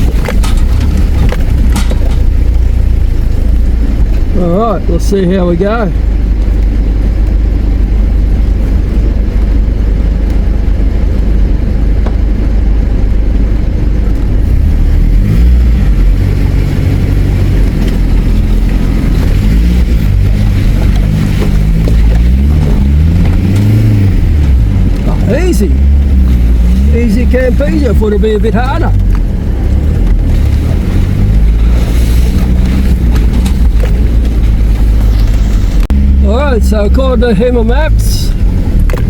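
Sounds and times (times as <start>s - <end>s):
off-road vehicle engine under load: 0.0s - 39.0s.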